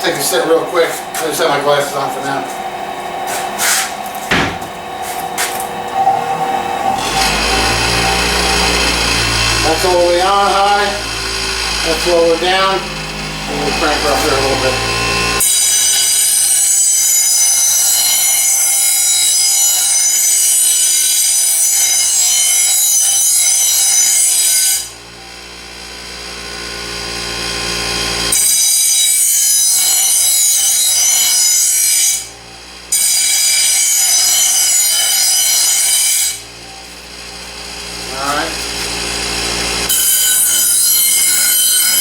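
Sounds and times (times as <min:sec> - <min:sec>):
bench grinder running hum: 0:00.0 - 0:42.0
grinder grinding metal blade: 0:00.0 - 0:42.0.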